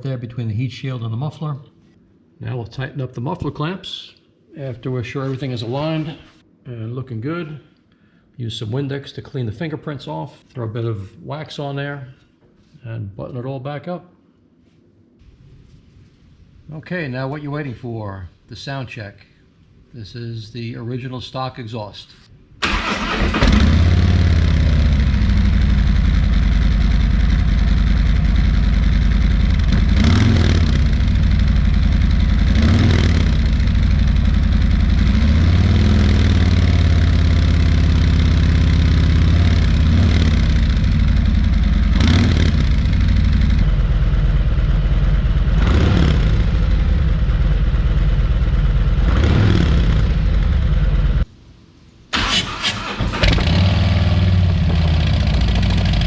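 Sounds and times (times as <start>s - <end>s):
motorcycle engine idling: 23.6s - 51.2s, 53.8s - 56.0s.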